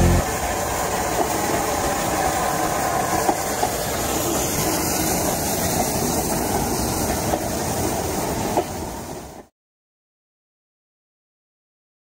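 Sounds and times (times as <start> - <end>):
train wheels rumbling on rail: 0.1 - 9.5.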